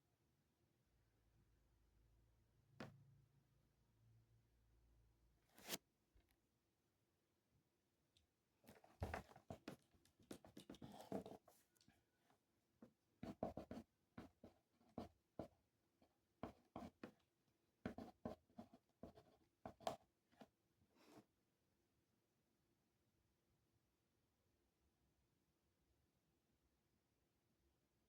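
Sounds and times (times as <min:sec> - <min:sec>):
pen scratching on paper: 0:10.8 - 0:11.5, 0:13.2 - 0:15.5, 0:16.4 - 0:17.2, 0:17.8 - 0:20.5.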